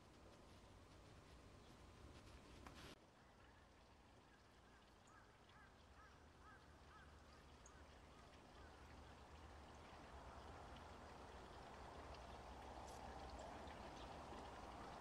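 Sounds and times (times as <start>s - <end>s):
faint short bird calls: 4.7s - 8.7s.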